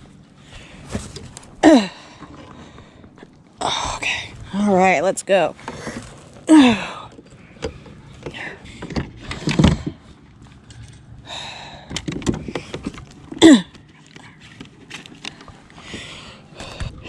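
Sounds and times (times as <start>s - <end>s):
gear knocking and rustling: 5.6s - 17.0s.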